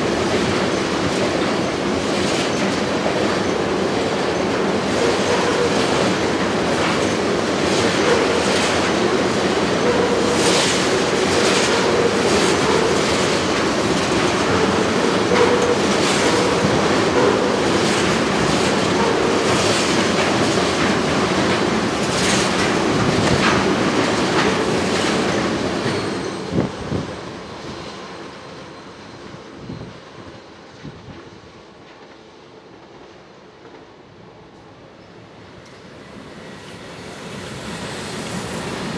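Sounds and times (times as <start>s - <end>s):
train wheels clicking over rail joints: 0.0s - 27.0s
train rumble and hum: 0.0s - 38.9s.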